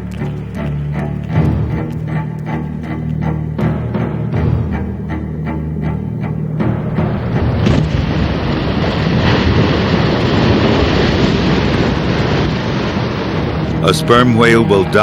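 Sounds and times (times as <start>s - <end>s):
wind: 0.0s - 15.0s
sea waves rushing: 6.6s - 15.0s.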